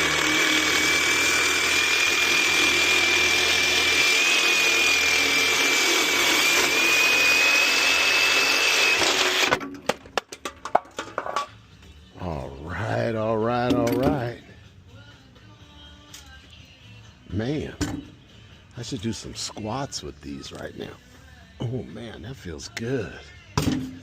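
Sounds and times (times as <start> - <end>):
power tool cutting metal: 0.0 - 9.6.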